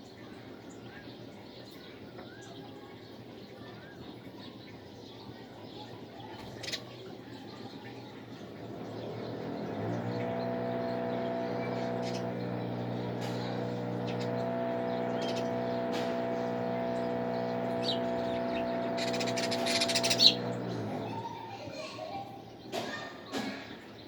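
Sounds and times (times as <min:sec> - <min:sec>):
birds chirping: 0:00.0 - 0:24.0
motor engine running: 0:08.3 - 0:21.6.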